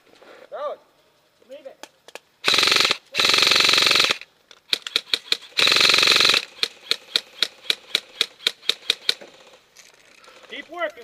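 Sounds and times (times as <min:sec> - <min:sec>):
airsoft gun full auto bursts: 0:02.4 - 0:09.6.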